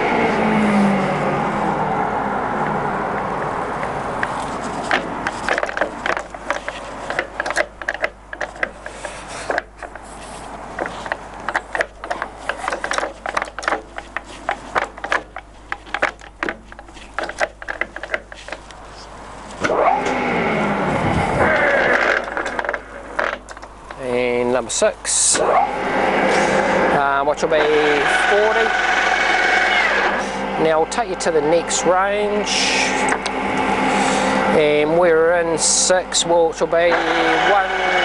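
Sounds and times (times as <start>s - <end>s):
lathe gearing clicks and clunks: 10.8s - 18.4s, 34.6s - 38.0s
lathe running: 19.7s - 23.3s, 25.3s - 38.0s.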